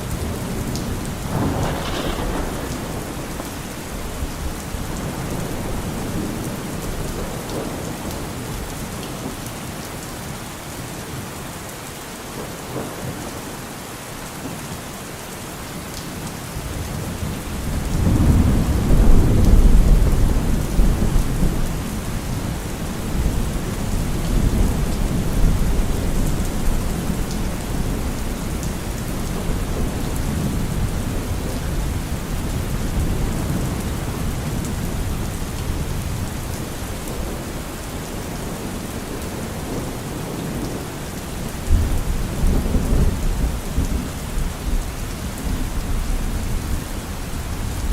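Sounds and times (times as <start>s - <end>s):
steady rain: 0.0s - 47.9s
rolling thunder: 0.1s - 8.0s, 16.6s - 37.8s.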